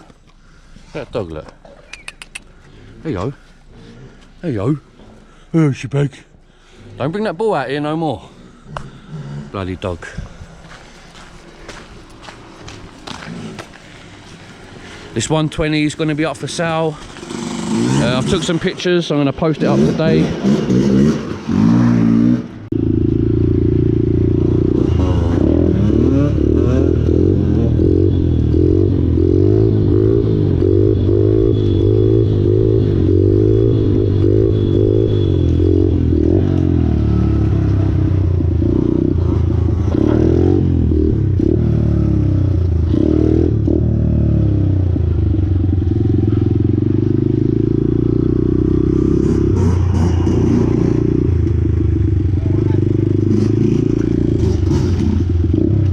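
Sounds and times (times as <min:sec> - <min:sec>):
pit bike engine revving: 0:17.0 - 0:55.9.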